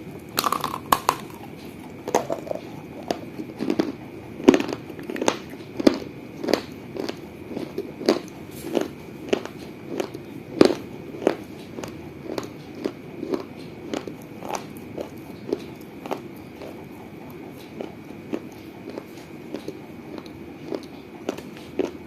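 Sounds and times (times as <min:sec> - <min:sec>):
teeth crunching baked clay: 0:00.0 - 0:22.0.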